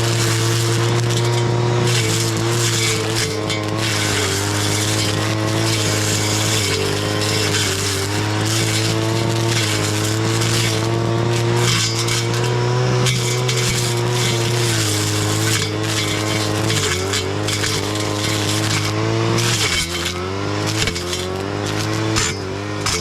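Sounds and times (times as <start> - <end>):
brush cutter engine cutting grass: 0.0 - 23.0.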